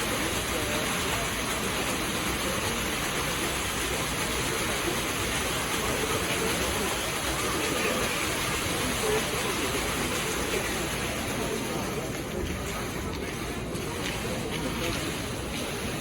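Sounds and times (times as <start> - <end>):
faint voices: 0.0 - 16.0
water pouring and splashing: 0.0 - 16.0.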